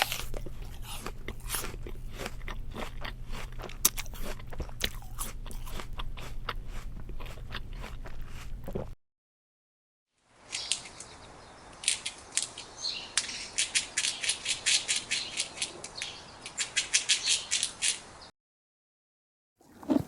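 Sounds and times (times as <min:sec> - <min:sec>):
small animal chirping rapidly: 0:13.2 - 0:18.1.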